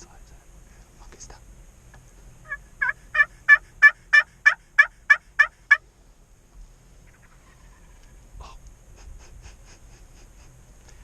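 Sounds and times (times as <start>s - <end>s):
turkey yelps: 2.4s - 5.8s, 7.0s - 8.1s.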